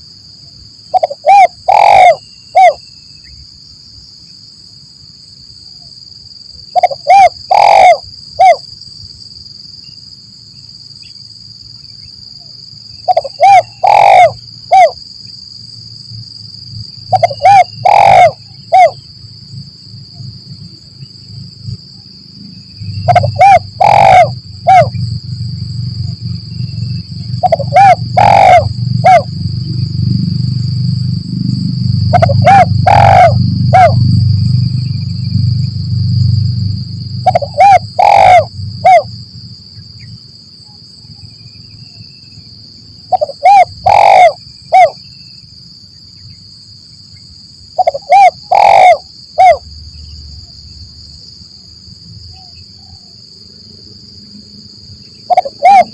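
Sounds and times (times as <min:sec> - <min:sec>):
dove cooing: 0:00.9 - 0:02.8, 0:06.8 - 0:08.6, 0:13.1 - 0:15.0, 0:17.1 - 0:19.0, 0:23.0 - 0:25.0, 0:27.3 - 0:29.3, 0:32.1 - 0:34.1, 0:37.2 - 0:39.1, 0:43.1 - 0:45.0, 0:47.8 - 0:49.6, 0:55.3 - 0:55.9
low rumble: 0:24.4 - 0:37.4.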